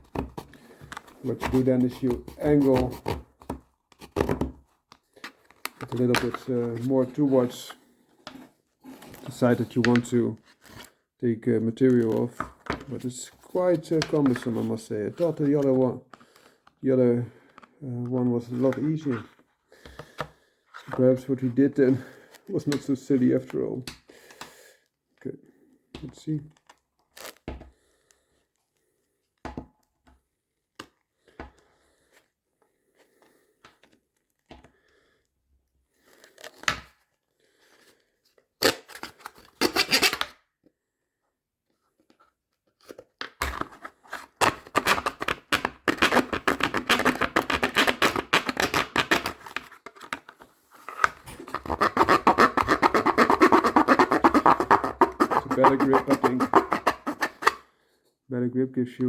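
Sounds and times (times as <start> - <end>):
knife sawing through case: 0.1 - 4.4, 43.5 - 49.7, 50.8 - 57.6.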